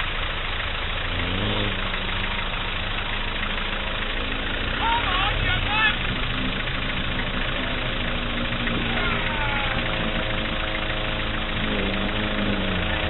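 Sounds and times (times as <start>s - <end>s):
four-wheel-drive engine running: 0.0s - 13.0s
faint voices: 4.8s - 10.2s.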